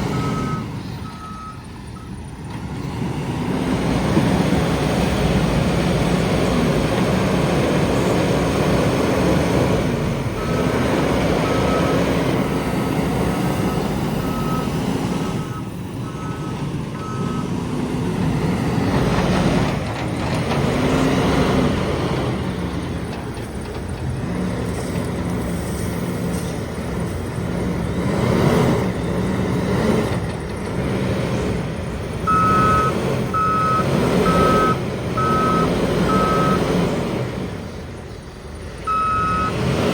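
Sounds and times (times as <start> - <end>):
diesel engine revving: 0.0 - 39.9
reversing alarm beeping: 0.1 - 2.2, 10.4 - 12.6, 13.4 - 17.6, 32.3 - 36.7, 38.9 - 39.9.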